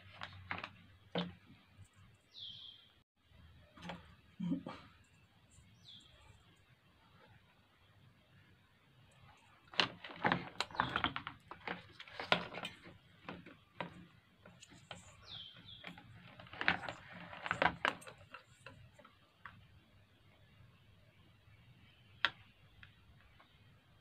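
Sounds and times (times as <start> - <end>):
bird chirp: 1.8 - 3.0, 4.4 - 7.3, 14.6 - 16.5.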